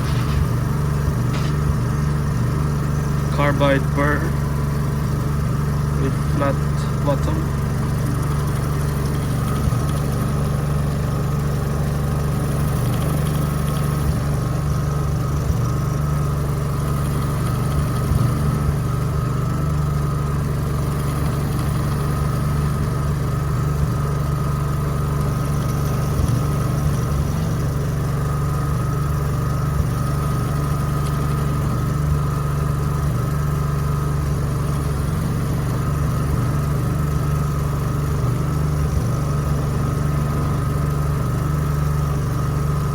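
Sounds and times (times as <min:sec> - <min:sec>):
milling machine cutting tone: 0:00.0 - 0:10.8
generator engine running: 0:00.0 - 0:42.9.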